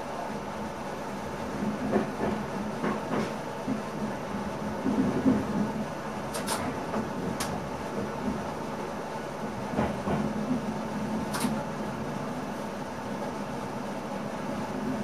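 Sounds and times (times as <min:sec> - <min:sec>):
train cab running noise: 0:00.0 - 0:15.0
sharp click: 0:06.3 - 0:06.6, 0:11.3 - 0:11.6.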